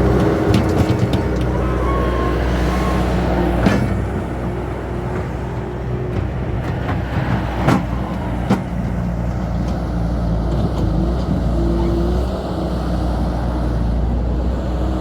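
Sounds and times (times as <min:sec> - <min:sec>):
tone above engine hum: 0:00.0 - 0:08.9.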